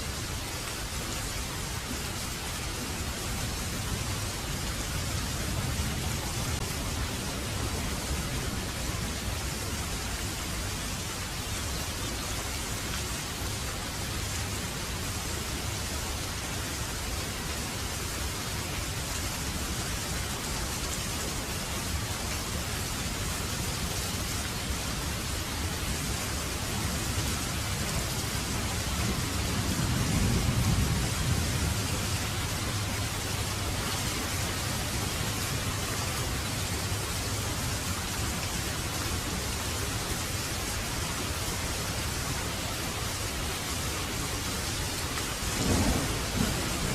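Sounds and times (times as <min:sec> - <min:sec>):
heavy rain: 0:00.0 - 0:46.9
thunder rolling: 0:45.4 - 0:46.9.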